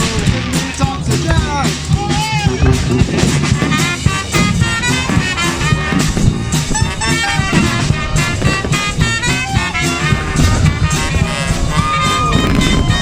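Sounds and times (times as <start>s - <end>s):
jazz band playing swing: 0.0s - 13.0s.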